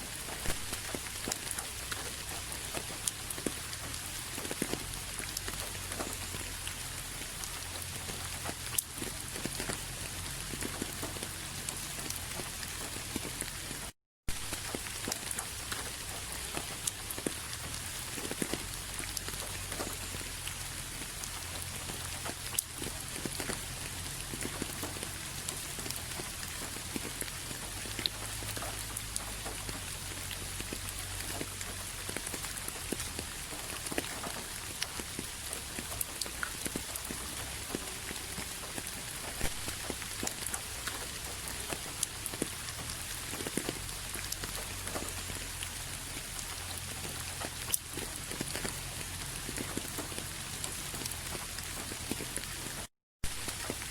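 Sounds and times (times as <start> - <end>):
rain falling: 0.0 - 53.9
raindrops ticking on a surface: 0.0 - 53.9.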